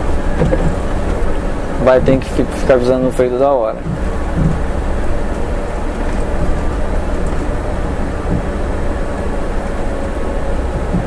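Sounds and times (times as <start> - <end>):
bus engine drone: 0.0 - 11.0
road noise: 0.0 - 11.0.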